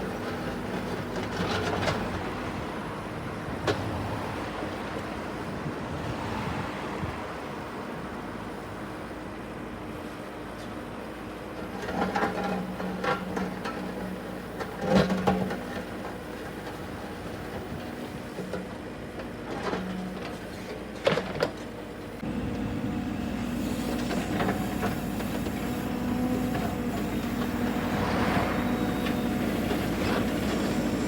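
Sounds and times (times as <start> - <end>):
engine running: 11.8 - 31.0.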